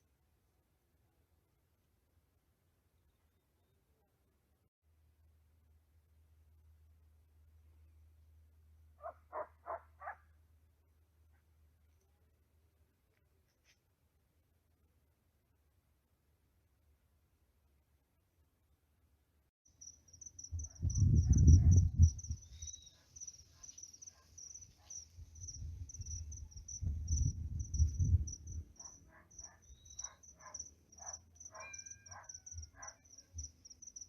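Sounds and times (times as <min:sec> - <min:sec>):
insects chirping trill: 0:19.7 - 0:34.0.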